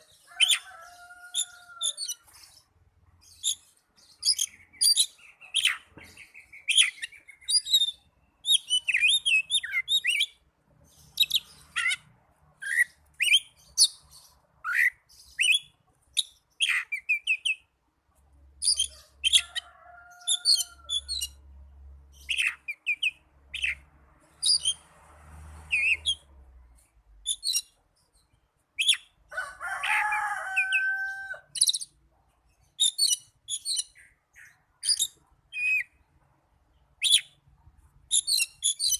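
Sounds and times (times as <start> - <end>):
bird song with whistles and chatter: 3.2 - 10.4, 12.6 - 17.6, 22.2 - 23.8, 27.3 - 27.7, 28.8 - 29.2, 30.6 - 32.0, 32.8 - 36.0, 37.0 - 37.4, 38.1 - 38.9.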